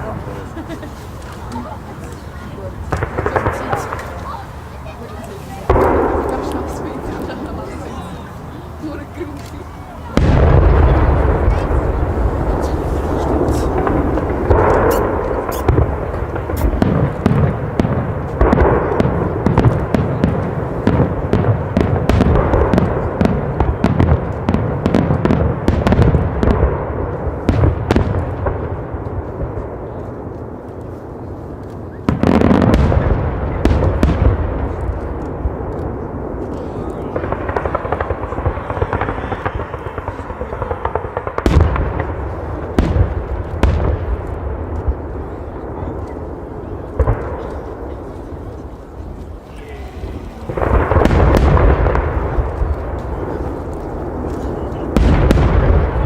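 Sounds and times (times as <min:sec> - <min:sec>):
fireworks crackling and booming: 0:00.0 - 0:56.0.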